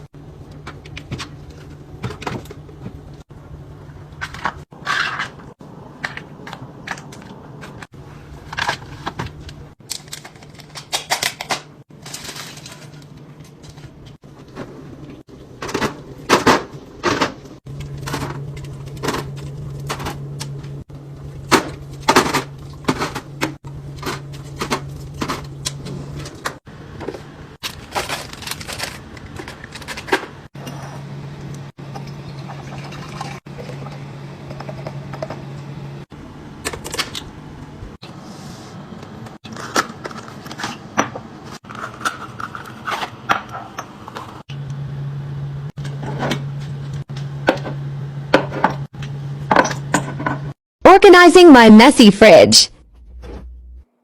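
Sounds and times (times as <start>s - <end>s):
refrigerator hum: 0.0s - 50.5s.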